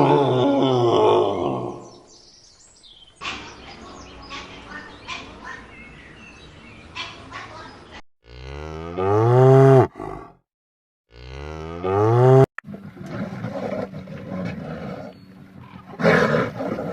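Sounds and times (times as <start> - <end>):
cow mooing: 8.2 - 10.3, 11.1 - 12.5.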